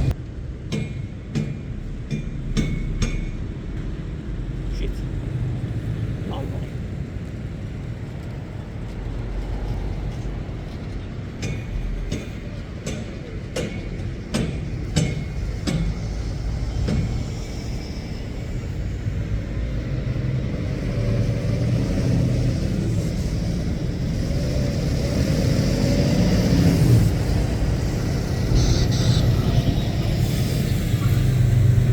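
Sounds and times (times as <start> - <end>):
lorry diesel engines passing: 0.0 - 31.9
sharp knocks: 0.7 - 3.5.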